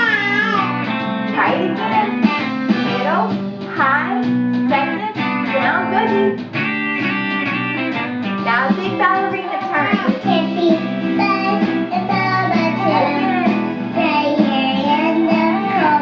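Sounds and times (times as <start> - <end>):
child-like singing voice: 0.0 - 0.9, 8.8 - 16.0
instrumental accompaniment: 0.0 - 16.0.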